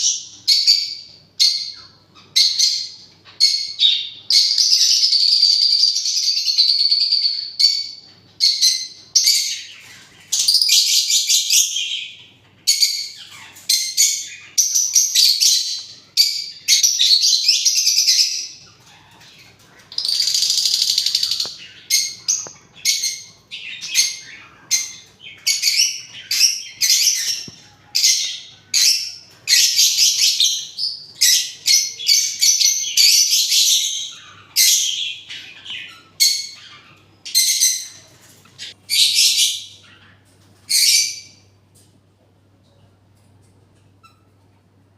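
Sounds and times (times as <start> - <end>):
parrots chirping and screeching: 0.0 - 41.5.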